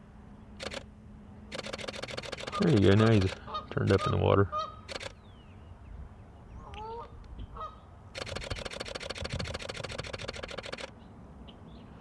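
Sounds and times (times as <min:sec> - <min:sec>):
camera shutter burst: 0:00.6 - 0:00.9, 0:01.5 - 0:04.2, 0:04.9 - 0:05.2, 0:08.2 - 0:10.9.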